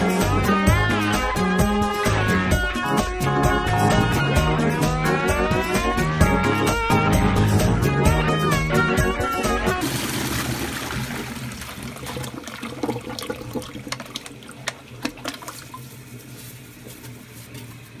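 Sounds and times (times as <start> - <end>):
toilet flushing: 9.7 - 16.2
gurgles and splashes: 9.8 - 16.0.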